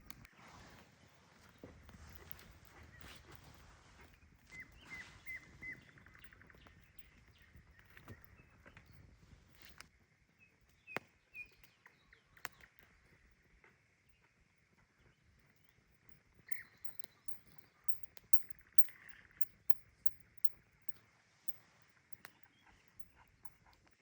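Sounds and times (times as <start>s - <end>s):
bird chirps: 1.4s - 9.8s, 14.9s - 24.0s
sharp clicks: 16.5s - 23.9s.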